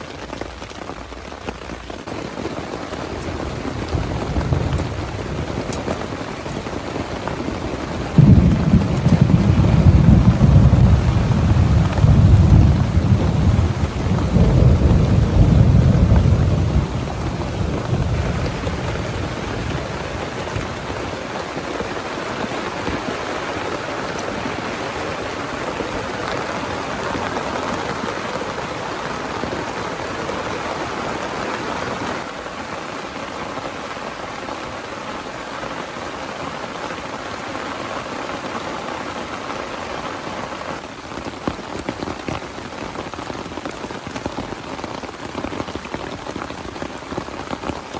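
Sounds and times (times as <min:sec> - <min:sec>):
heavy rain: 0:00.0 - 0:47.9
thunder rumbling: 0:02.1 - 0:29.8.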